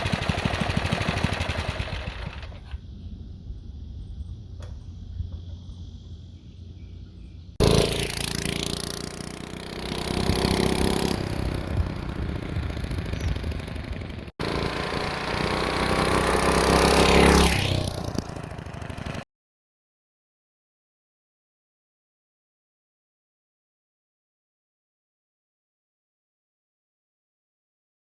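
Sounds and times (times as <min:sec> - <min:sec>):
mini bike engine passing: 0:00.0 - 0:02.8, 0:07.6 - 0:19.2.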